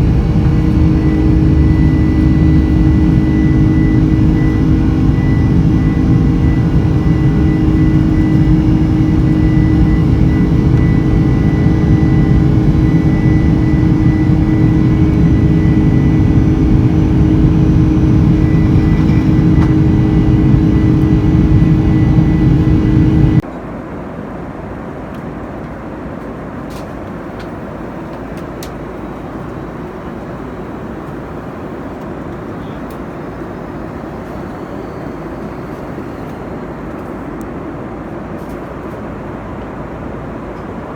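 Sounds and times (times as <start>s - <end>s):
cabin hum: 0.0s - 23.5s
aircraft engine and airflow noise: 0.0s - 40.9s.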